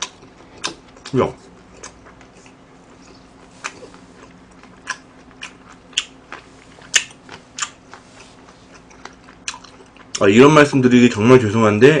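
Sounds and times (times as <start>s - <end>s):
person chewing food: 0.0s - 10.3s
sharp mouth clicks: 6.9s - 7.8s.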